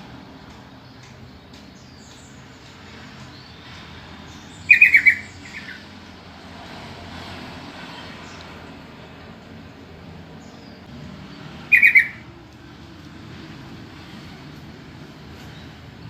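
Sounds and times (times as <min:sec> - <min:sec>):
bird calling bubbly notes: 0:11.7 - 0:12.2.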